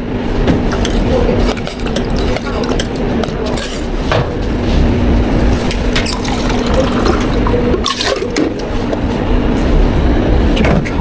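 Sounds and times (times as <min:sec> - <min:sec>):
steady hum: 0:00.0 - 0:11.0
liquid pouring into container: 0:06.0 - 0:08.7.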